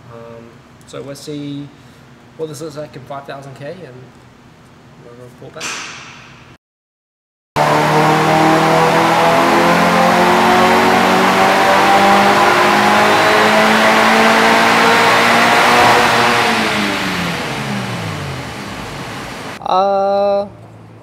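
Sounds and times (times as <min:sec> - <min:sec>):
turbocharged car engine revving: 0:07.6 - 0:19.6.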